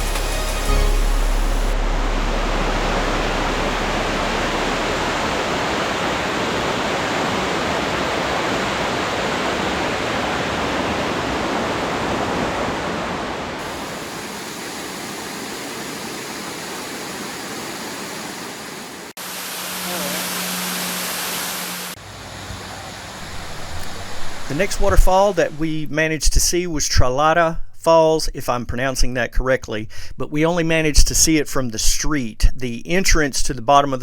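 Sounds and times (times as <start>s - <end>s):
waterfall rushing: 0.0s - 25.6s.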